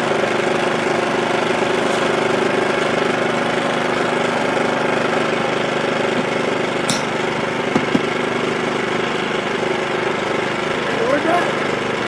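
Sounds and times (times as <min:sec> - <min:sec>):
generator engine running: 0:00.0 - 0:12.0
small knocks: 0:06.9 - 0:08.2.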